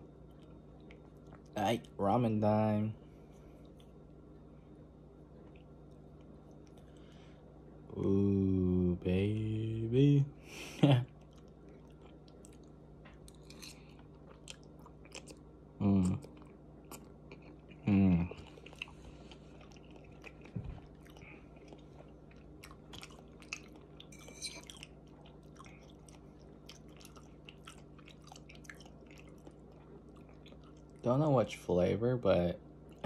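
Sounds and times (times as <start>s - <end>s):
person chewing noodles: 5.4s - 7.3s, 11.1s - 31.0s
short hummed vocal sound: 7.9s - 11.1s, 15.8s - 16.4s, 17.3s - 18.6s
metal fork in ceramic bowl: 24.1s - 24.7s.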